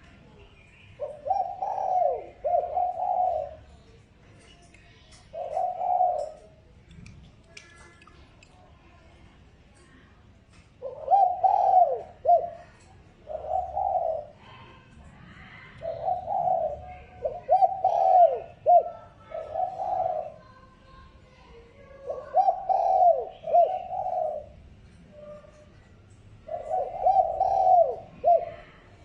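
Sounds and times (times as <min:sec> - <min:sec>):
dove cooing: 0:01.0 - 0:04.0, 0:05.2 - 0:06.6, 0:10.8 - 0:20.6, 0:21.9 - 0:25.8, 0:26.4 - 0:29.0.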